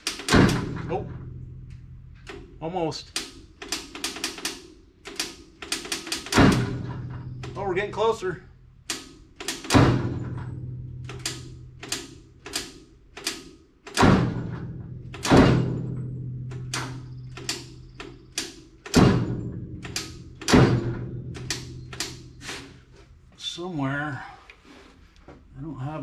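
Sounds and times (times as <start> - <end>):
electric starter clicking: 0.0 - 0.6, 11.0 - 14.1, 19.8 - 20.6
heavy thuds of starter engaging: 0.0 - 7.8, 8.9 - 22.8.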